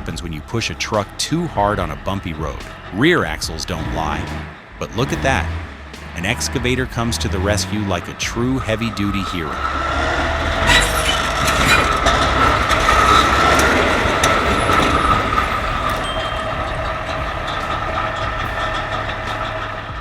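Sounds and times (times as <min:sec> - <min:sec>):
machinery engine rumble: 0:00.0 - 0:20.0
metallic knocks and clanks: 0:08.2 - 0:20.0.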